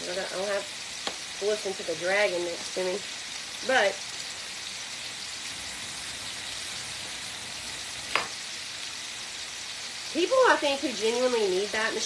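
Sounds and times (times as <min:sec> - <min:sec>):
meat sizzling in oil: 0:00.0 - 0:12.0.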